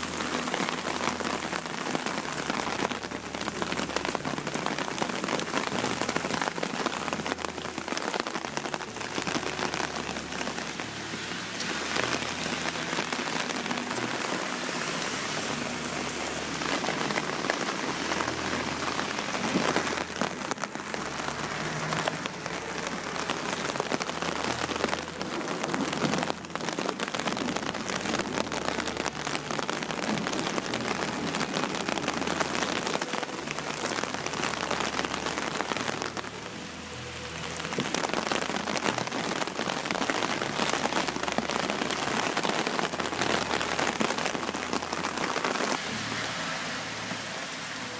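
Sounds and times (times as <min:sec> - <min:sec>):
heavy rain on plastic umbrella: 0:00.0 - 0:47.9.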